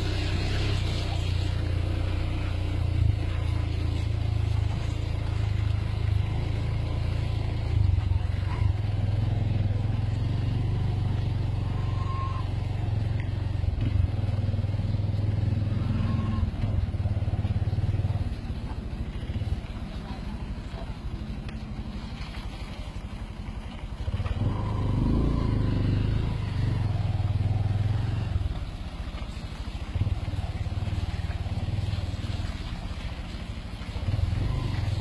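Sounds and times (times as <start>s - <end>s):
off-road vehicle engine drone: 0.0s - 35.0s.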